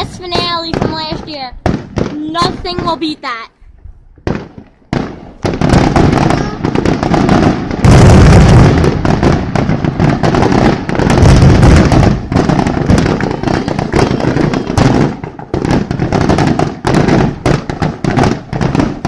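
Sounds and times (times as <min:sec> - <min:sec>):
fireworks cracks and booms: 0:00.0 - 0:03.5, 0:04.1 - 0:19.0.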